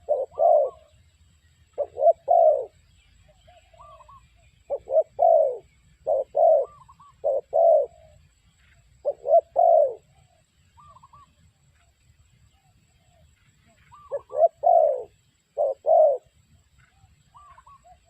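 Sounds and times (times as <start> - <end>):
fainter higher dove cooing: 0.0 - 0.9, 1.8 - 2.8, 3.7 - 8.2, 9.0 - 10.2, 13.9 - 16.3
dove cooing: 0.0 - 1.0, 1.8 - 8.3, 9.0 - 11.3, 12.6 - 18.0.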